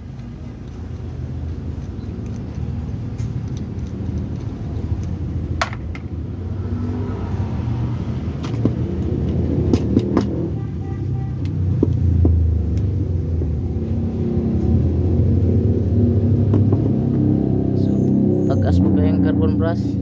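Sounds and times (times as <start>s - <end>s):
low engine rumble: 0.0s - 20.0s
sharp clicks and taps: 0.1s - 6.2s, 11.3s - 13.9s, 14.6s - 17.3s.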